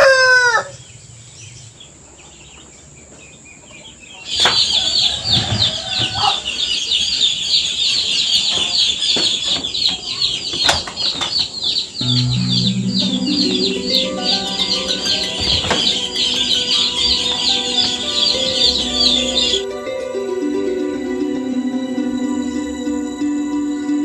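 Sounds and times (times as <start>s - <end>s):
rooster crowing: 0.0s - 0.7s, 4.7s - 6.6s
birds chirping: 6.5s - 19.6s.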